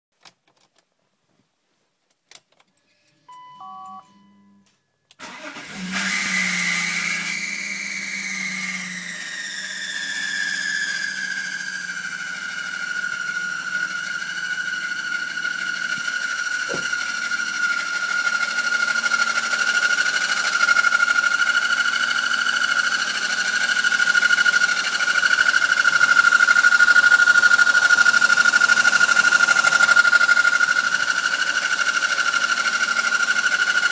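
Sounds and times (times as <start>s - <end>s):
car engine idling with whine: 5.4s - 33.9s.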